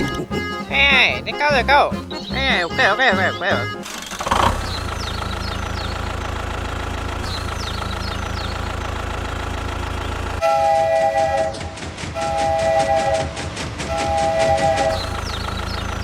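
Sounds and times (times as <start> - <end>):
clacking rhythm: 0.0 - 4.0
engine rumble: 0.0 - 10.7, 14.3 - 16.0
train horn: 10.4 - 15.2.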